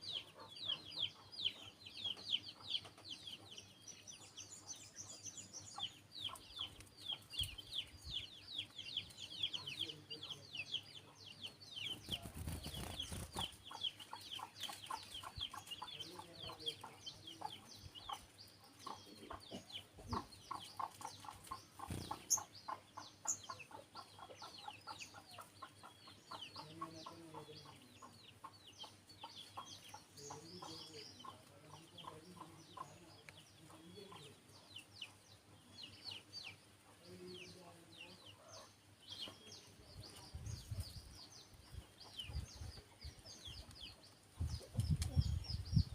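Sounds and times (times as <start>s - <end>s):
hen clucking: 13.0s - 34.4s.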